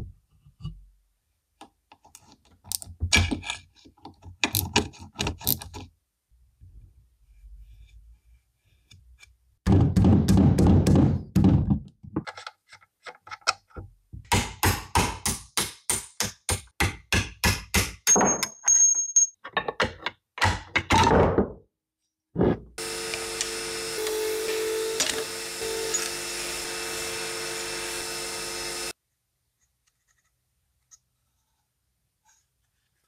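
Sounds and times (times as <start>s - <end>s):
small power tool running: 22.8s - 29.0s.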